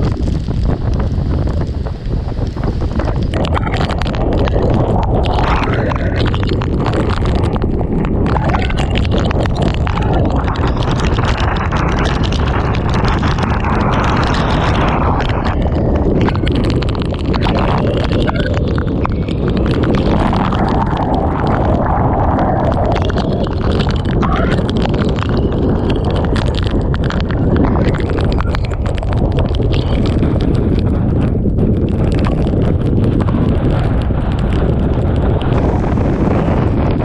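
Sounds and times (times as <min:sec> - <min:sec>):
driving rain tapping: 0:00.0 - 0:37.0
wind buffeting microphone: 0:00.0 - 0:37.0.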